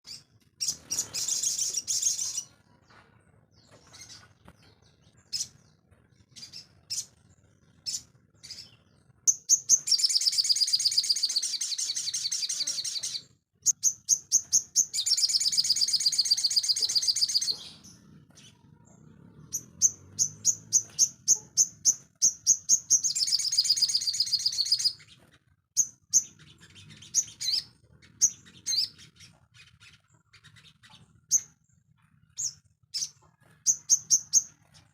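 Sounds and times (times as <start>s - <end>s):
bird singing high-pitched trills: 7.8s - 18.0s, 19.5s - 25.2s, 25.8s - 31.6s.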